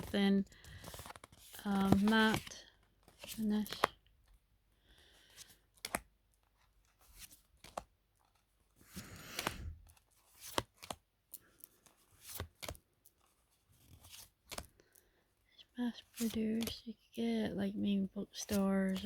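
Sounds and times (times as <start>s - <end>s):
cards sliding swish: 8.9s - 10.9s.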